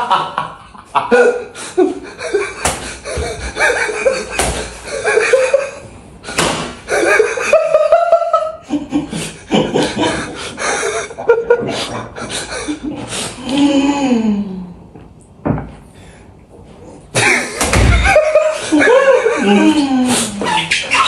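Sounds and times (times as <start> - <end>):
people laughing: 0.0 - 6.0, 6.9 - 13.2, 17.2 - 21.0
sharp impact sounds: 4.3 - 4.8.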